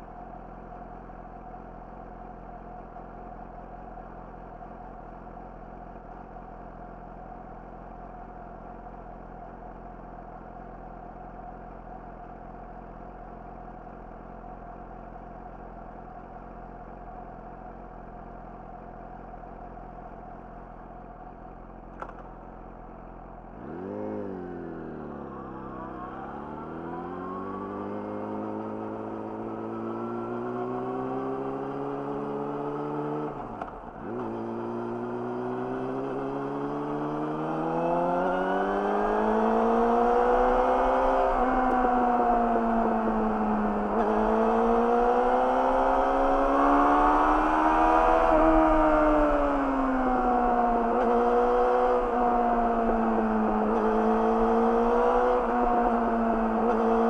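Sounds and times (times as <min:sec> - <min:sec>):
motorcycle engine: 0:21.9 - 0:57.0
single click: 0:22.0 - 0:22.3.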